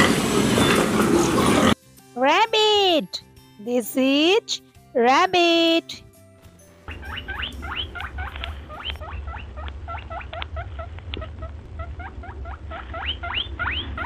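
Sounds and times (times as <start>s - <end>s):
low hum: 6.7s - 14.0s
rabbit squeaking: 6.9s - 14.0s.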